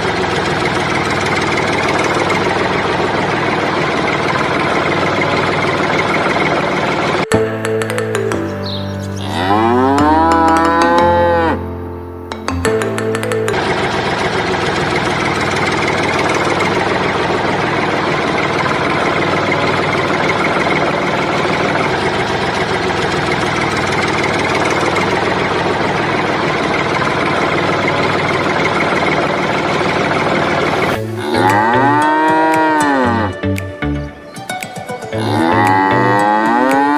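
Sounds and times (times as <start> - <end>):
engine-like drone: 0.0 - 7.3, 13.1 - 34.3, 35.1 - 36.9
pitched mooing call: 9.1 - 11.7, 30.9 - 33.4, 35.2 - 36.9.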